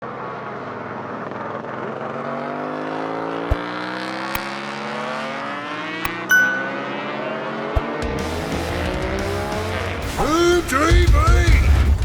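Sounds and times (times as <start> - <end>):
vehicle engine accelerating: 0.6 - 6.2, 6.8 - 10.0.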